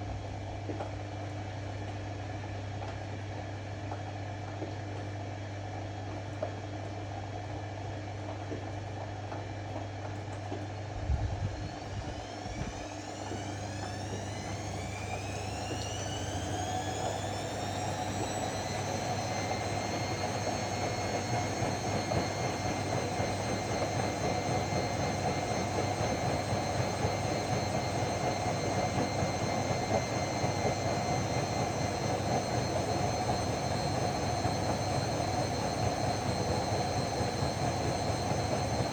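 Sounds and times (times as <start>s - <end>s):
washing machine motor whine: 10.8s - 38.9s.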